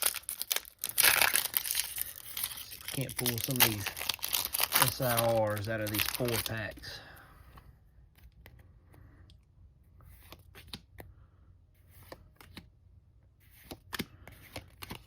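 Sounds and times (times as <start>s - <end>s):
trading cards rustling and sliding: 0.0s - 7.0s, 9.9s - 11.1s, 11.8s - 12.7s, 13.3s - 15.0s.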